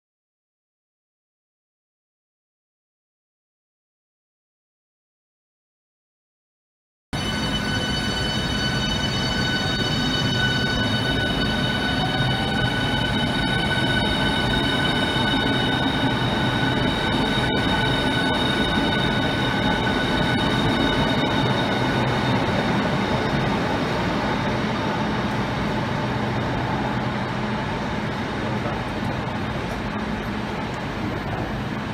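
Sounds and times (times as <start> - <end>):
high-pitched electric train whine: 7.2 - 31.9
moving train rumble: 7.2 - 31.9.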